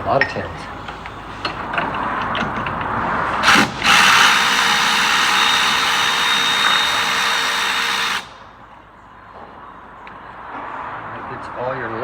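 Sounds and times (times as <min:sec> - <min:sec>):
air tool hissing: 0:03.4 - 0:08.4.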